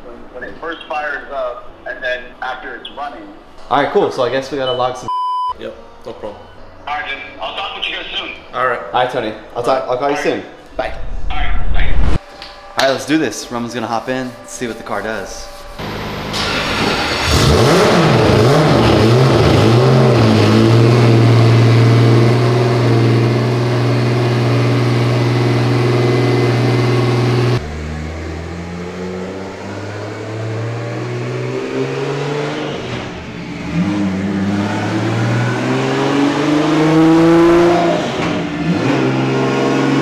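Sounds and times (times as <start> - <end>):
car engine revving: 15.8 - 40.0.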